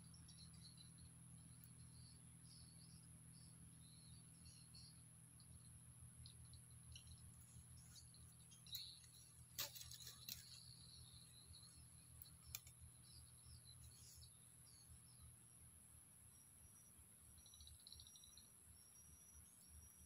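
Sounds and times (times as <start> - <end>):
constant high-pitched tone: 0.0 - 20.0
faint high bird chirps: 0.0 - 20.0
steady low hum: 0.0 - 20.0
sharp clicks: 12.2 - 12.8.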